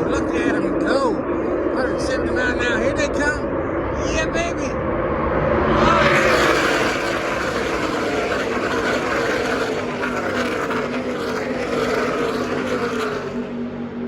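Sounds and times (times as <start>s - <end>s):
race trucks passing at speed: 5.1s - 14.0s.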